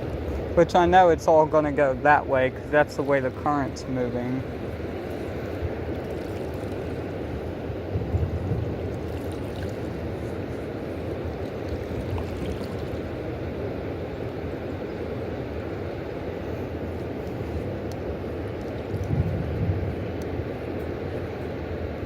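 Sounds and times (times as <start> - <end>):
fast river water rushing: 0.0 - 22.0.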